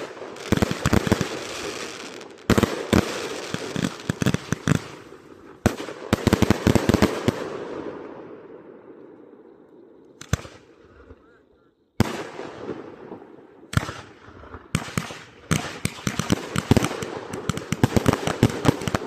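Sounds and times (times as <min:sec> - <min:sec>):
firework crackling hiss: 0:00.0 - 0:07.3
firework bangs: 0:00.0 - 0:08.2, 0:12.0 - 0:19.0.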